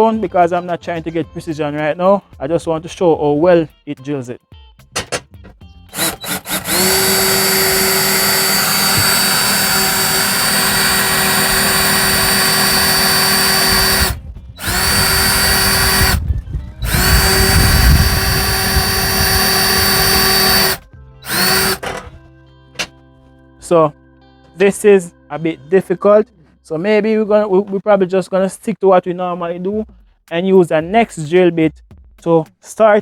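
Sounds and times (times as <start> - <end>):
power drill drilling into metal: 5.9 - 22.2.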